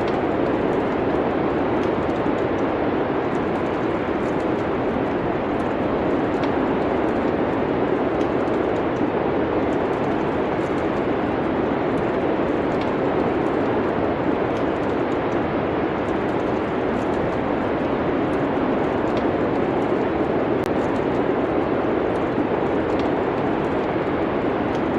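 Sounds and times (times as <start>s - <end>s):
faint wood fire crackles: 0.0s - 24.9s
rushing wind: 0.0s - 24.9s.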